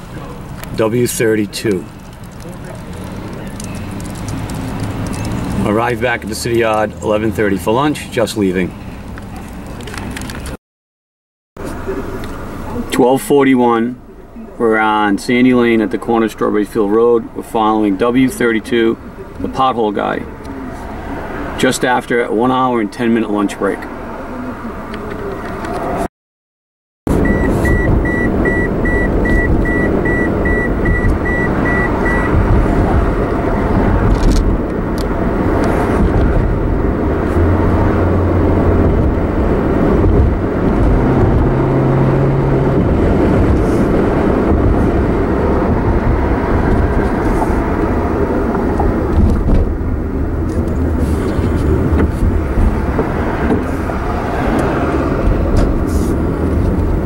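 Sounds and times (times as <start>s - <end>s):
car engine and road noise: 0.0s - 10.6s, 11.6s - 26.1s, 27.1s - 57.0s
high electronic beep: 27.2s - 32.4s.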